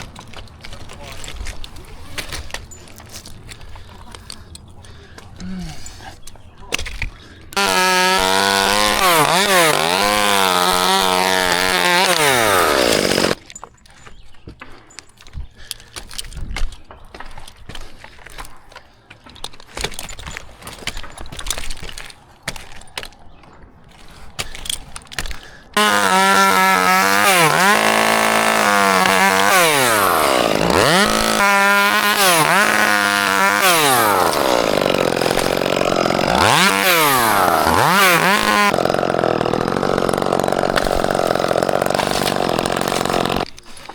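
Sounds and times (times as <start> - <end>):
chainsaw running and cutting: 7.5 - 13.4, 25.8 - 43.5.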